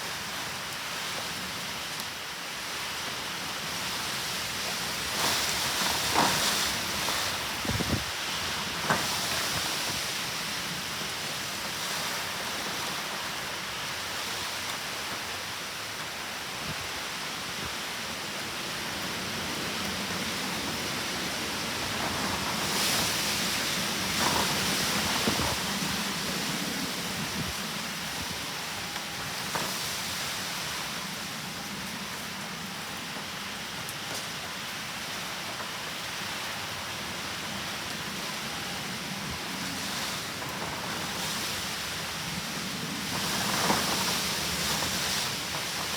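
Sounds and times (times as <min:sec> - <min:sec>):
heavy rain: 0:00.0 - 0:45.9.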